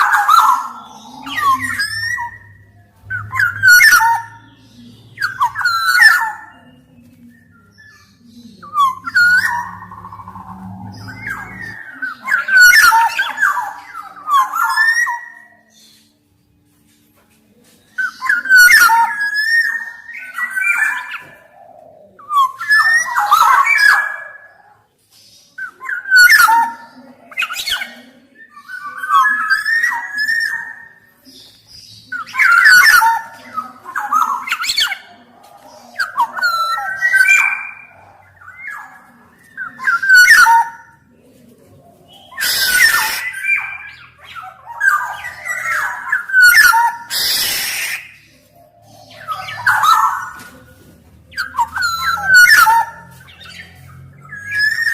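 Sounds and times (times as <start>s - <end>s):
bird singing fluty whistles: 42.3s - 48.2s.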